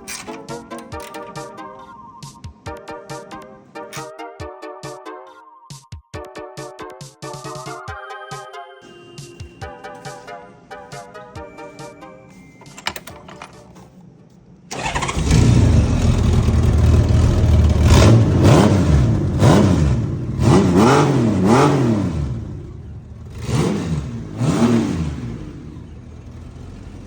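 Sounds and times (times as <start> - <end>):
motorcycle engine revving: 14.7 - 27.0.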